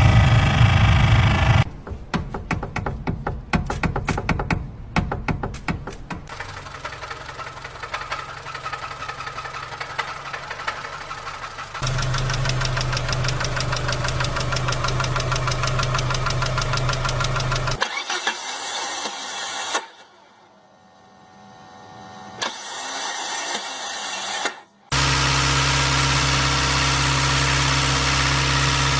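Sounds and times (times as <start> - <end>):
car engine running: 0.0 - 1.7, 6.3 - 17.8
engine knocking: 6.3 - 17.8.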